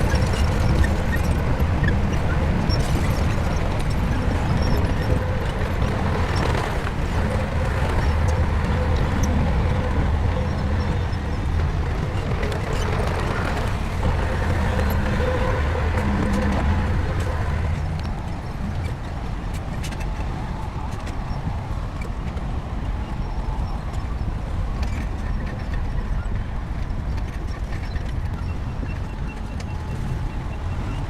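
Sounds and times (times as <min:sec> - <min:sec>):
diesel engine droning: 0:00.0 - 0:19.3.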